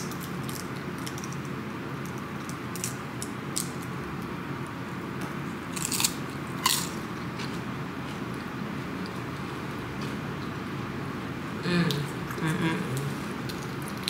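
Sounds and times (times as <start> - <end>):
crunchy bites into tortilla chip: 5.8 - 7.0.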